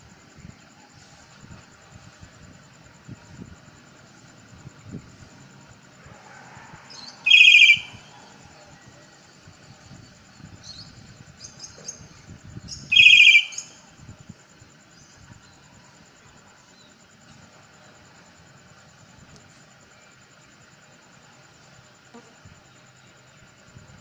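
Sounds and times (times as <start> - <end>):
bird trilled calls: 7.0 - 8.1, 10.7 - 13.8
soft bird chirps: 7.0 - 13.8.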